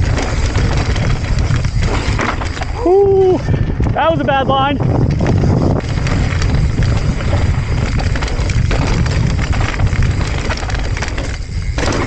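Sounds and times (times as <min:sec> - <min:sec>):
bike tyres on dirt and stones: 0:00.0 - 0:12.0
wind rumbling on microphone: 0:00.0 - 0:12.0.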